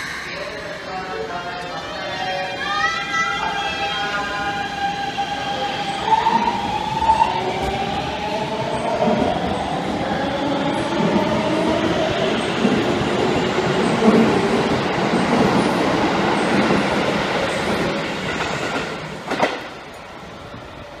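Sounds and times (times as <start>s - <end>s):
distant train: 0.0s - 21.0s
electric train passing: 0.0s - 21.0s.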